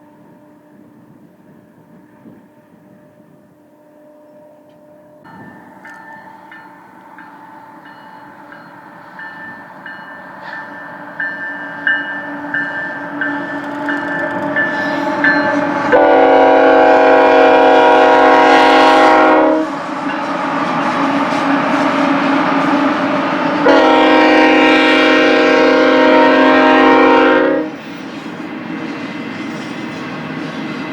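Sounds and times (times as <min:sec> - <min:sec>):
diesel locomotive rumble: 0:05.3 - 0:30.9
locomotive air horn blast: 0:12.2 - 0:27.8.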